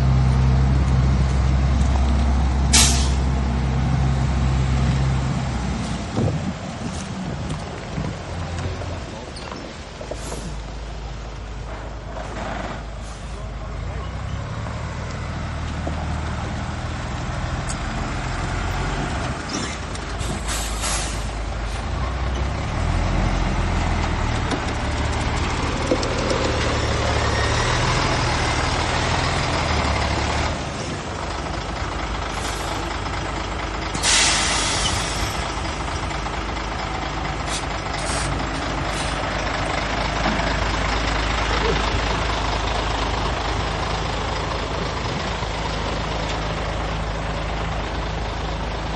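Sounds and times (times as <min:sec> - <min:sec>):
heavy diesel machinery running: 0:00.0 - 0:48.9
air brake hisses: 0:02.7 - 0:03.2, 0:19.6 - 0:21.8, 0:34.0 - 0:35.4, 0:37.5 - 0:38.3.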